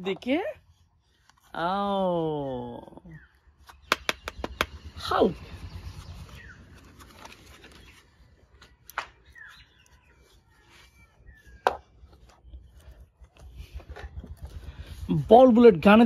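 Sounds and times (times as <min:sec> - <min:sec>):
plastic toys knocking: 0:03.9 - 0:04.8.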